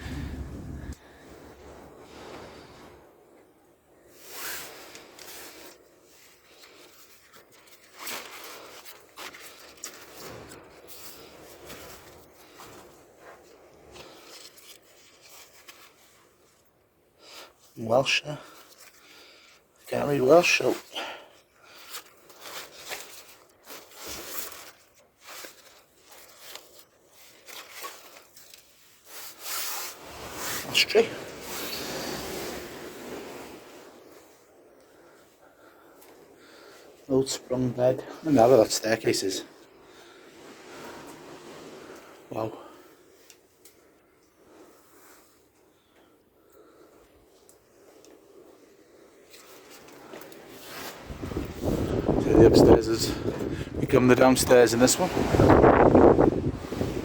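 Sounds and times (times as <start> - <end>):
rustling and scraping: 4.1 - 17.6, 21.4 - 57.0
paper rustling and scraping: 21.7 - 34.0.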